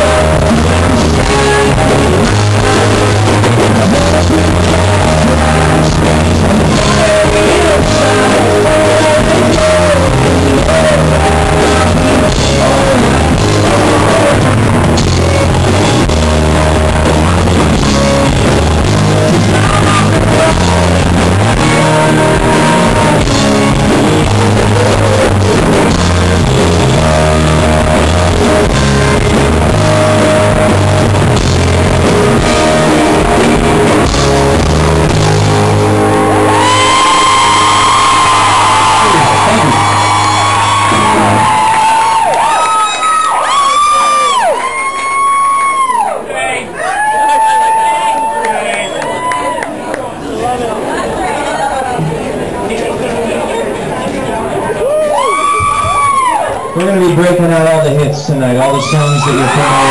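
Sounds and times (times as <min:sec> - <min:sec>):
lead voice singing: 0:00.0 - 0:42.4
rock band playing live: 0:00.0 - 0:45.9, 0:54.8 - 0:59.9.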